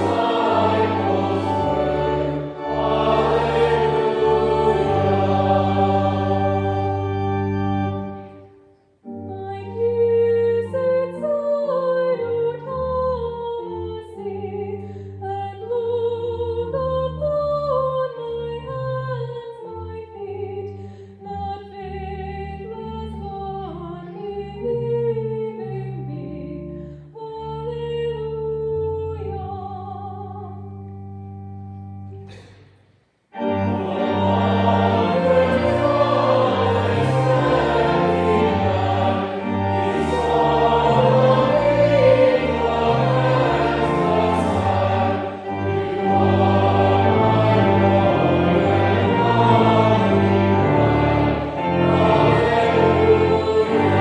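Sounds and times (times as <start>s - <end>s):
congregation singing a hymn: 0.0s - 12.1s, 33.3s - 54.0s
organ playing: 0.0s - 14.9s, 30.6s - 32.3s, 33.3s - 54.0s.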